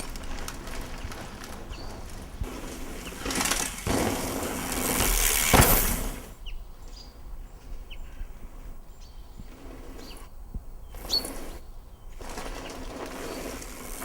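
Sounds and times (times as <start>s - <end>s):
bike tyres crunching on gravel: 0.0s - 6.4s, 10.9s - 14.0s
bird chirps: 6.4s - 12.2s.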